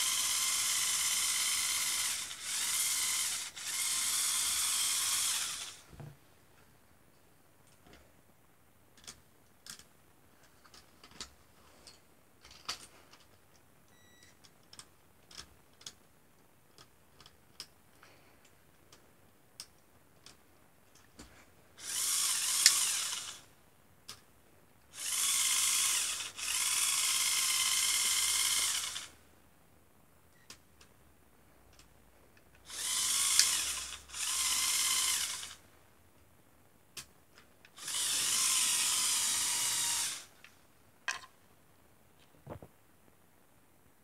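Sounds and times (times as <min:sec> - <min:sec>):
electric motors whirring: 0:00.0 - 0:05.8, 0:21.8 - 0:23.4, 0:25.0 - 0:29.1, 0:32.7 - 0:35.6, 0:37.8 - 0:40.3.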